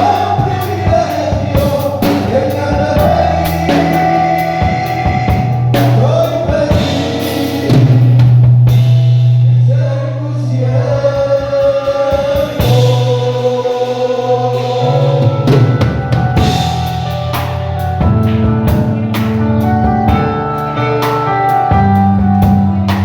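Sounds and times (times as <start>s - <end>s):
drum kit: 0.0s - 9.8s, 10.9s - 23.0s
people singing worship song: 0.0s - 17.6s
bass guitar: 0.0s - 23.0s.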